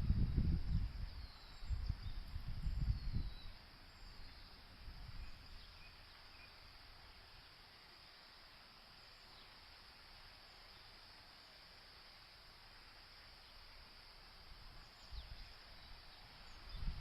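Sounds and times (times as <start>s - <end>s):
wind buffeting microphone: 0.0s - 3.6s, 16.5s - 17.0s
insect drone: 0.0s - 17.0s
faint bird chirps: 0.3s - 9.8s, 14.7s - 17.0s.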